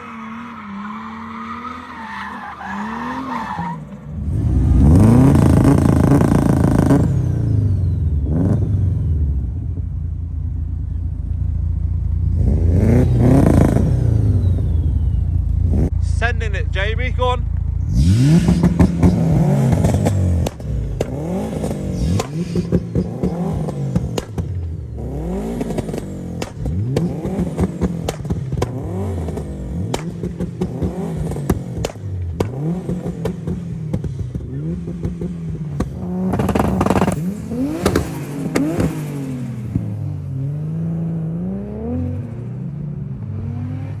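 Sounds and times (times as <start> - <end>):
car engine revving: 0.0 - 44.0
exhaust crackles and pops: 13.1 - 40.0.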